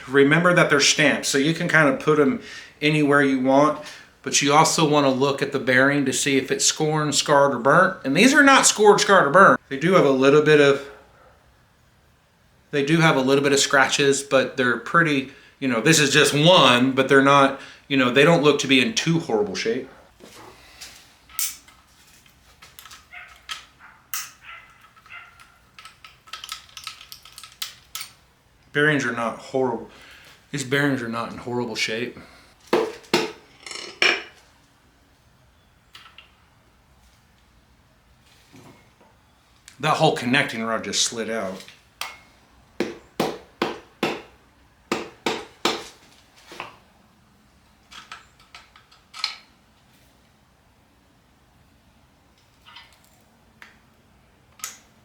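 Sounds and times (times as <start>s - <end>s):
hammer tapping on metal parts: 42.0s - 44.3s, 44.9s - 46.0s.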